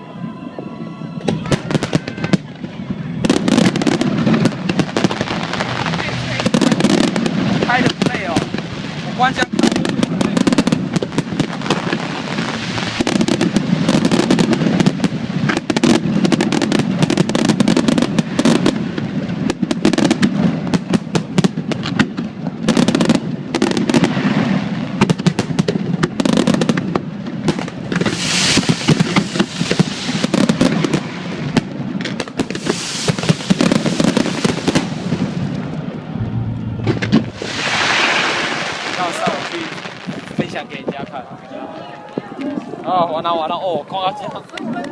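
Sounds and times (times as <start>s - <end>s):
fireworks bangs and crackles: 0.0s - 44.9s
hissing crackle bursts: 1.5s - 41.0s.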